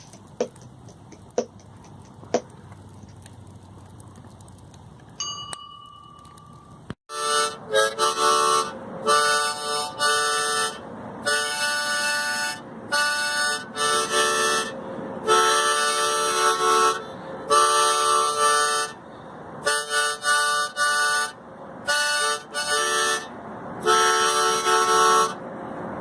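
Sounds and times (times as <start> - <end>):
harmonica playing chords: 7.1 - 19.0, 19.6 - 25.4.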